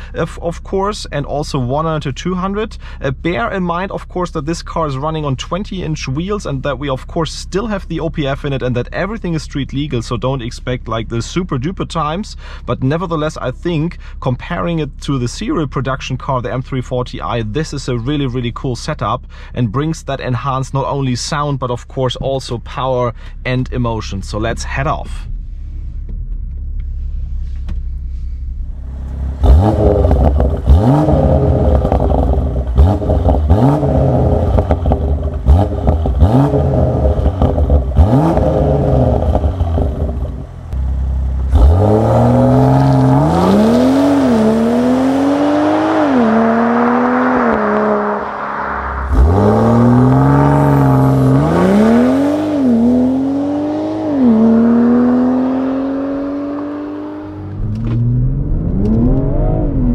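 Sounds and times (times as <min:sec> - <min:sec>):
exhaust cracks: 0:22.1 - 0:59.9
car engine revving through gears: 0:28.8 - 0:59.9.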